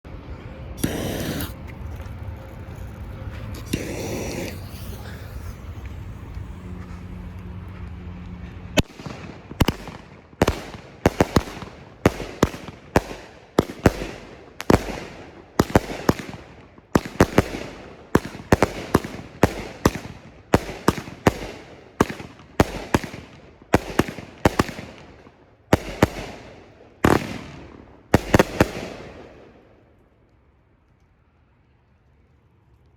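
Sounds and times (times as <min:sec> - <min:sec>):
steady background noise: 0:00.0 - 0:32.9
firework shots with hiss: 0:00.7 - 0:07.6, 0:08.8 - 0:29.9.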